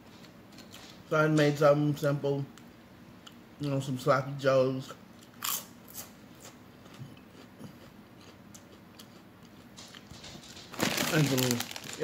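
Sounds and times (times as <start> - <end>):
potato chip crunching: 10.7 - 12.0.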